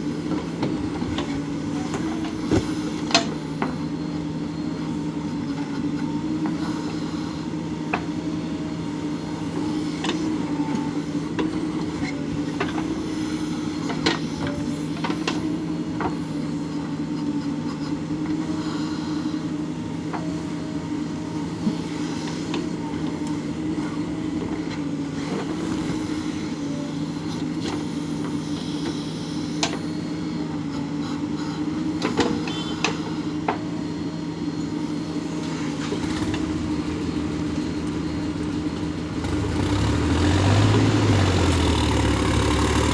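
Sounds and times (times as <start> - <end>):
diesel engine running: 33.8 - 42.9.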